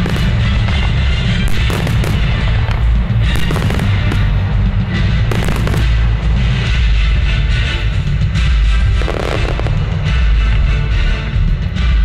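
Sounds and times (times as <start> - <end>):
fireworks bursting: 0.0 - 6.9, 8.9 - 10.4
music: 0.0 - 12.0.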